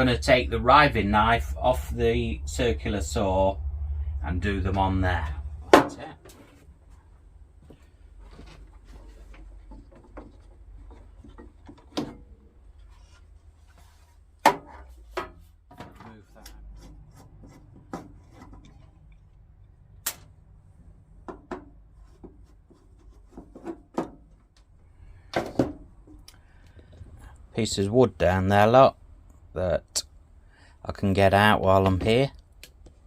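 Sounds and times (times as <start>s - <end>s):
knocks and clatters of metal and wood: 5.6s - 6.7s, 7.8s - 19.0s, 21.2s - 27.2s.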